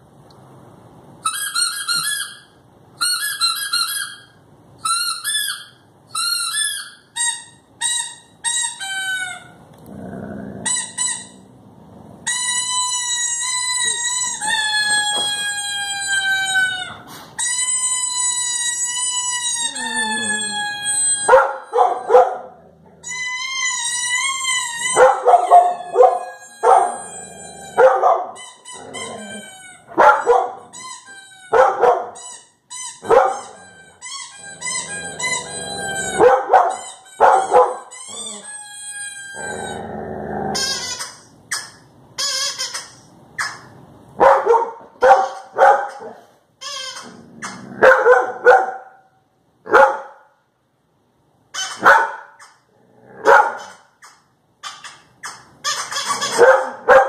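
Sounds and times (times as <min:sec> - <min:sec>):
dog barking: 0:21.3 - 0:22.5, 0:25.0 - 0:27.0, 0:27.8 - 0:28.4, 0:30.0 - 0:30.7, 0:31.5 - 0:32.2, 0:33.0 - 0:33.5, 0:36.2 - 0:37.9, 0:44.2 - 0:46.3, 0:47.8 - 0:49.1, 0:49.7 - 0:50.3, 0:51.8 - 0:52.4, 0:53.2 - 0:53.8, 0:56.3 - 0:57.0.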